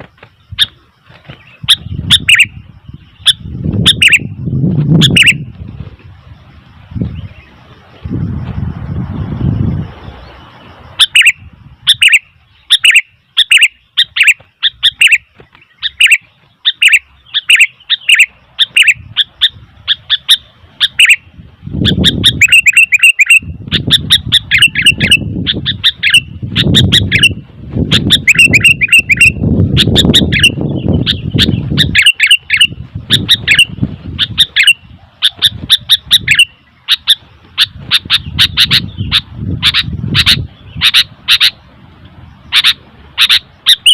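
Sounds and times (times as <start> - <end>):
bird giving sharp call notes: 42.5 - 43.9.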